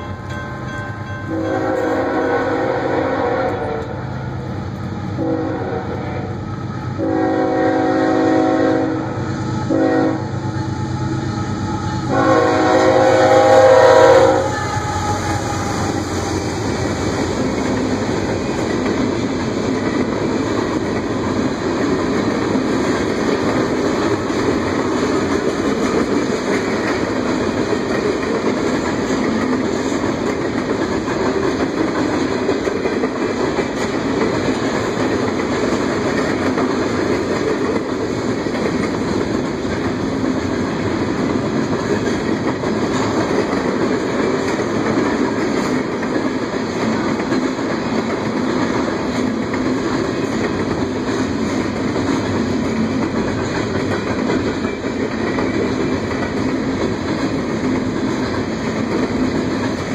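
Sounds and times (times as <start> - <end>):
locomotive air horn blasts: 1.3 - 4.0, 5.2 - 16.0.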